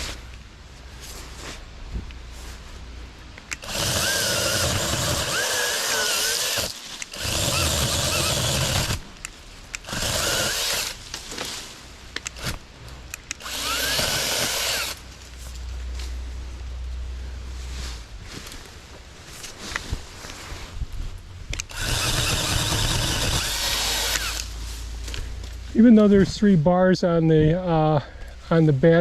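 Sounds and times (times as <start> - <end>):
electric chainsaw cutting wood: 3.5 - 9.0, 9.8 - 11.0, 13.4 - 15.0, 21.6 - 24.5.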